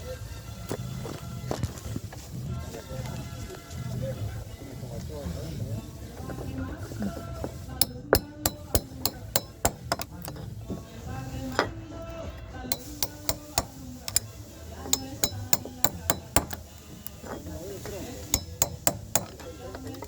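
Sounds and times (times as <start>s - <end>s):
background music: 0.0s - 20.0s
mallet striking caulking iron: 7.8s - 11.8s, 12.7s - 20.0s.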